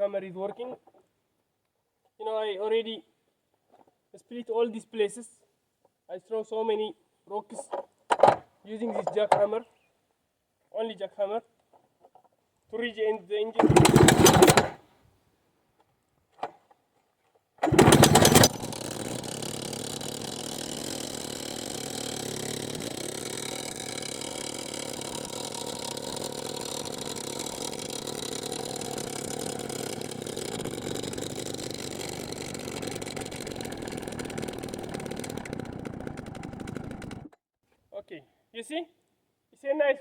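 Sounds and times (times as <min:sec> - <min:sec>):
rock drill engine running: 0:13.6 - 0:14.8, 0:17.6 - 0:37.3.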